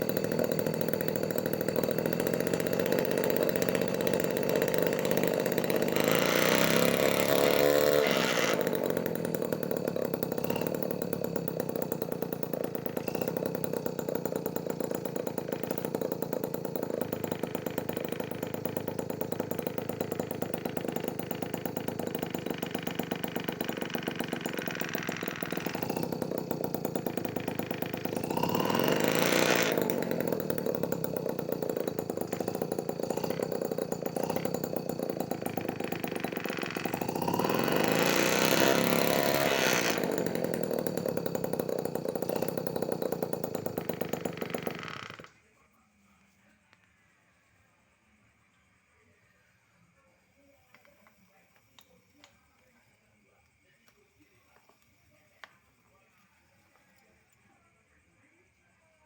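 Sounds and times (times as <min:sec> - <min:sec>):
small two-stroke engine idling and revving: 0:00.0 - 0:45.4.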